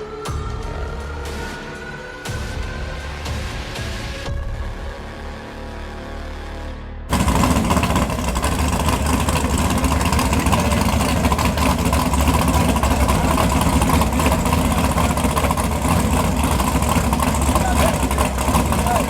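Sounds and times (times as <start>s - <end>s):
race car engine idling: 7.1s - 19.0s.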